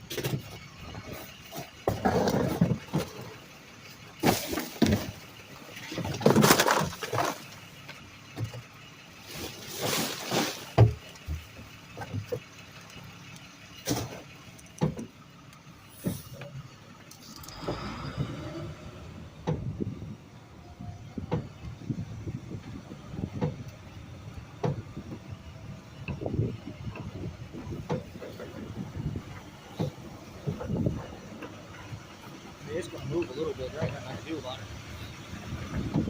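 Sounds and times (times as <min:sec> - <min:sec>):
garbage truck handling trash: 0:00.0 - 0:36.0
rising whine: 0:17.1 - 0:22.8.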